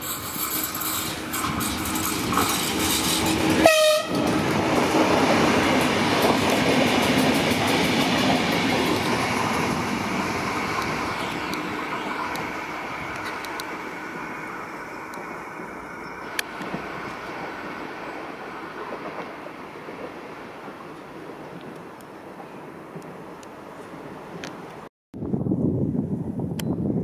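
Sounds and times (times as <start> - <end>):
train wheels clattering on rails: 0.0 - 13.8, 15.1 - 23.2
train horn blast: 3.5 - 4.4.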